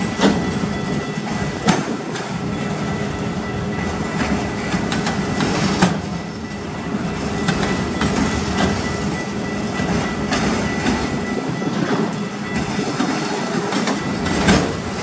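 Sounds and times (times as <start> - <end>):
steel wheels rumbling on rail: 0.0 - 15.0
wheels clicking over rail joints: 3.8 - 15.0.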